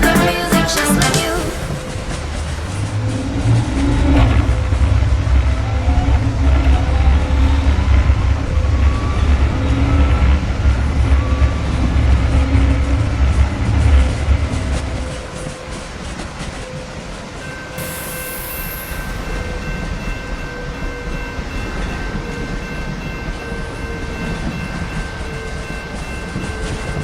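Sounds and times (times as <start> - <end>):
train wheels rumbling on rails: 1.3 - 27.0
thin high whining tones: 17.5 - 27.0
brief high hiss: 17.8 - 19.6.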